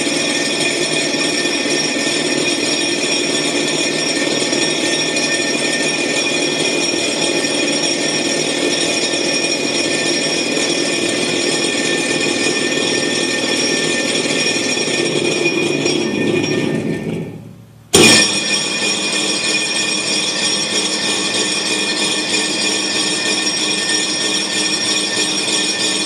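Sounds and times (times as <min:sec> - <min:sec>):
high whining tones: 0:12.7 - 0:26.0.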